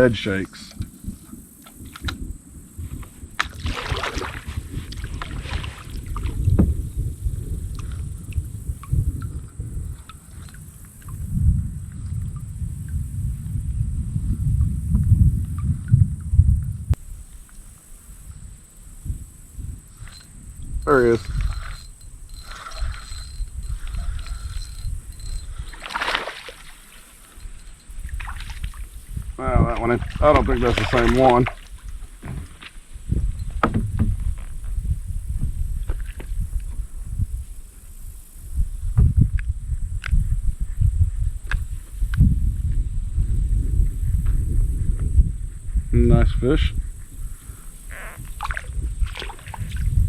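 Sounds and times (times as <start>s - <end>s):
wind rumble on microphone: 0.0s - 50.0s
paddle splashing water: 2.9s - 6.8s, 19.6s - 34.7s, 48.2s - 50.0s
knocks against kayak hull: 32.2s - 34.5s.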